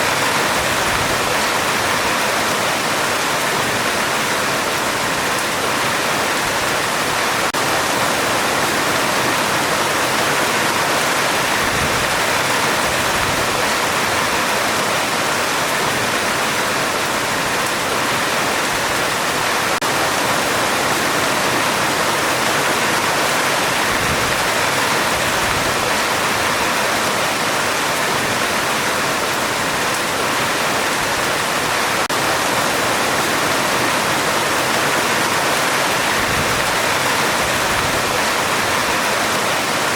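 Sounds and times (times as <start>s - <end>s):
heavy rain on a metal roof: 0.0s - 39.9s.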